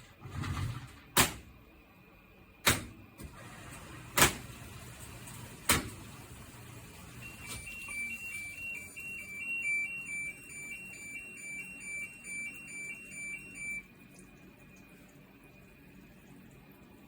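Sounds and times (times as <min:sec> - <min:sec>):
washing machine beeping tune: 0:03.3 - 0:16.8.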